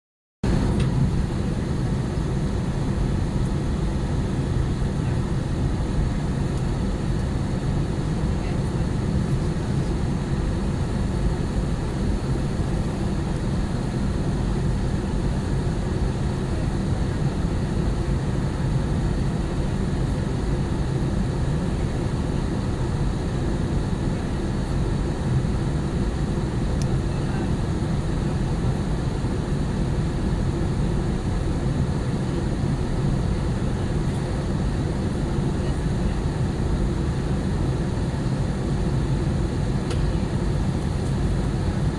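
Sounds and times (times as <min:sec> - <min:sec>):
jet engines rumbling: 0:00.5 - 0:19.7, 0:22.4 - 0:41.9
rushing air in cabin: 0:08.0 - 0:17.1, 0:33.3 - 0:41.9.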